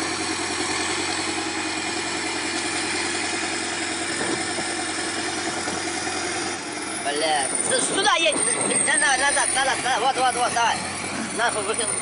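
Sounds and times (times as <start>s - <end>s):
heavy machine engine running: 0.0s - 12.0s.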